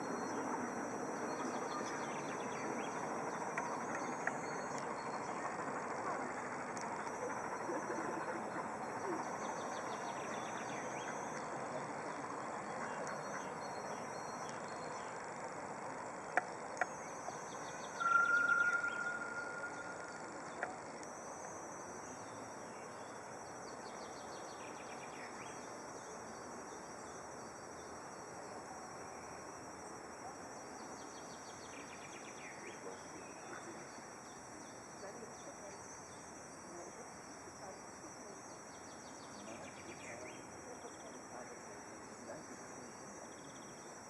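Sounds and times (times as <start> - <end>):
insects chirring: 0.0 - 44.0
held whistling note: 18.0 - 20.3.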